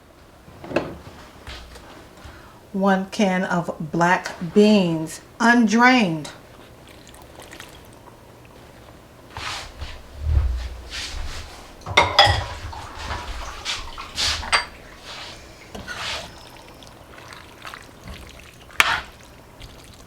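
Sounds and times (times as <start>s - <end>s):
can and spoon clanking on pot: 11.9s - 13.1s, 14.4s - 15.1s, 18.8s - 19.2s.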